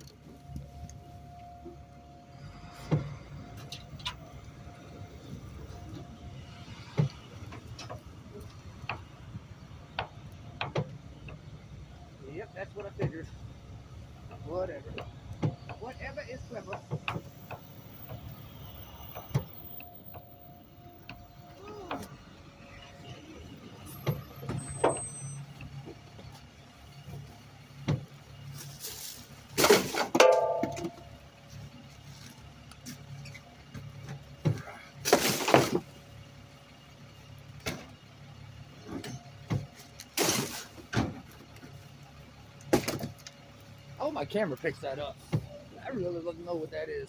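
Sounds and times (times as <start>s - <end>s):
garbage truck engine humming: 0.0s - 47.0s
brief squeal: 22.9s - 25.5s.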